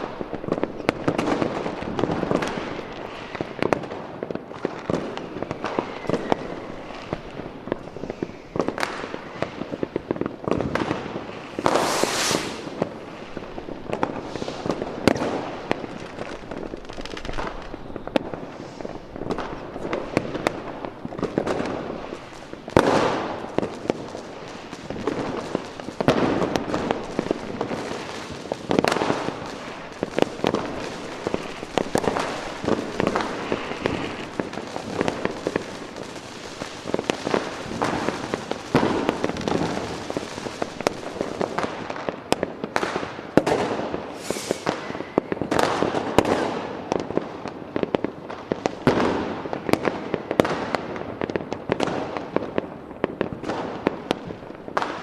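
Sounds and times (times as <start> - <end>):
fireworks bangs and crackling: 0.0 - 55.0
rising rocket whistle: 5.5 - 7.0, 11.5 - 12.8, 44.1 - 45.4.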